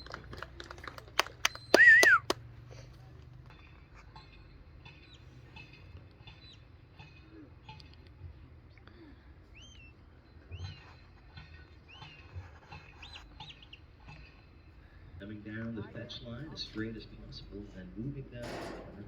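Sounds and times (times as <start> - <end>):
background murmur: 0.0 - 19.0
handler's whistle: 1.4 - 2.4.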